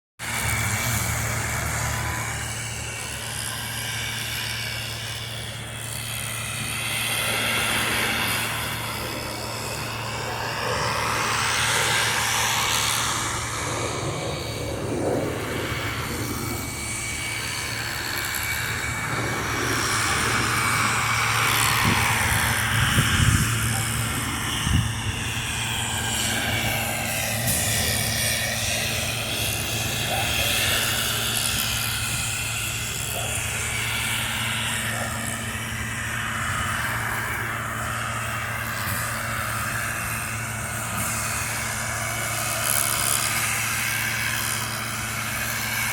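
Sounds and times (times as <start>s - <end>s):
broad rushing sound: 0.2s - 45.9s
engine humming: 0.2s - 45.9s
whooshing sweeps: 7.2s - 30.1s.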